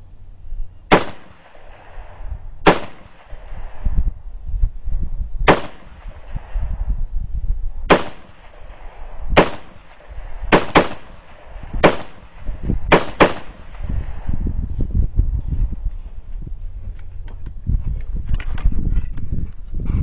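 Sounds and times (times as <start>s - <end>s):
rifle shots: 0.9s - 3.9s, 5.4s - 6.5s, 7.9s - 14.3s.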